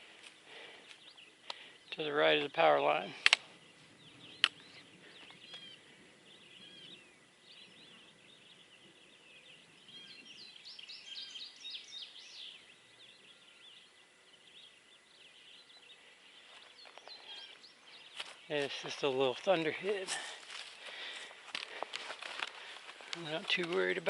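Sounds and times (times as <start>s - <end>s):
birds chirping: 0.0s - 24.0s
faint outdoor hiss: 0.0s - 24.0s.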